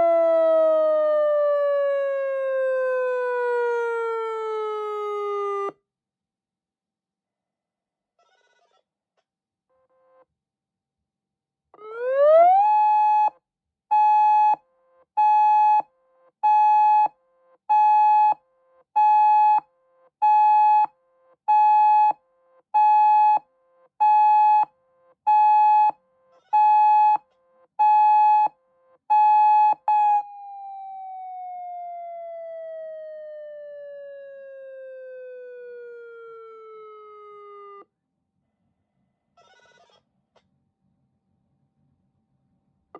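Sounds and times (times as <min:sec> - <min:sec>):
electronic siren tone: 0:29.1 - 0:37.8.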